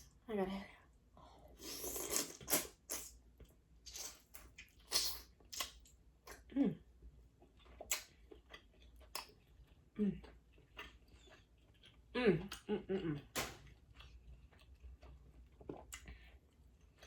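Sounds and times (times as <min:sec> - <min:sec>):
wet chewing and mouth smacks: 0:01.9 - 0:06.5, 0:07.3 - 0:12.7.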